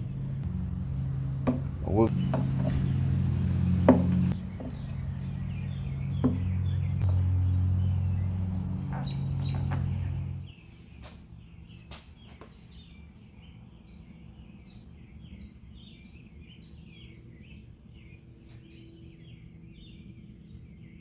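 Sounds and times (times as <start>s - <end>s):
low steady hum: 0.0s - 10.6s
birds chirping: 0.0s - 21.0s.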